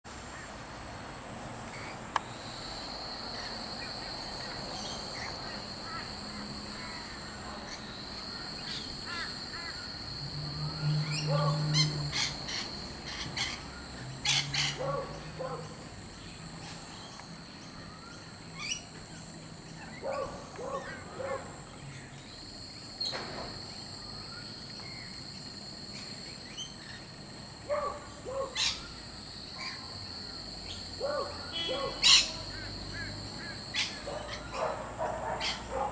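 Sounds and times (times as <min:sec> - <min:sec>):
harsh bird calls: 0:03.3 - 0:15.8, 0:27.7 - 0:29.0, 0:30.7 - 0:35.9.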